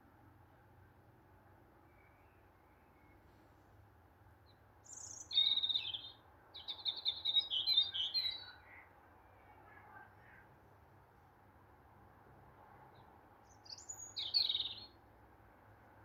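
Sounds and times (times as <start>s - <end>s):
songbird twittering trills: 4.8s - 8.7s, 13.5s - 15.0s.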